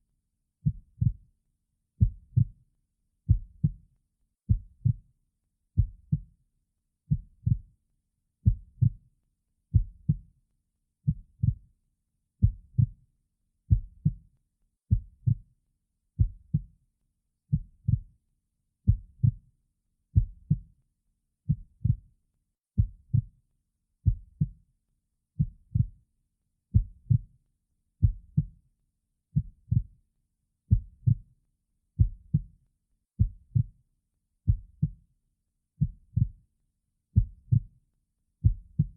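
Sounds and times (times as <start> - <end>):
slow heartbeat: 2.0 - 2.5, 3.3 - 3.8, 4.5 - 5.0, 7.1 - 7.7, 8.5 - 9.0, 9.8 - 10.2, 11.1 - 11.6, 12.4 - 13.0, 14.9 - 15.4, 17.5 - 18.1, 18.9 - 19.4, 20.2 - 20.7, 21.5 - 22.0, 22.8 - 23.3, 24.1 - 24.6, 25.4 - 26.0, 26.7 - 27.3, 28.0 - 28.5, 29.4 - 29.9, 30.7 - 31.2, 32.0 - 32.5, 33.2 - 33.8, 34.5 - 35.0, 35.8 - 36.4, 37.2 - 37.7, 38.4 - 38.9.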